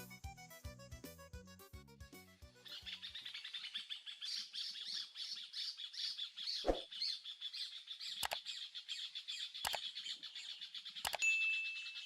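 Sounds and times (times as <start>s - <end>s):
many birds chattering: 2.7s - 11.2s
sharp click: 8.2s - 8.4s, 11.0s - 11.2s.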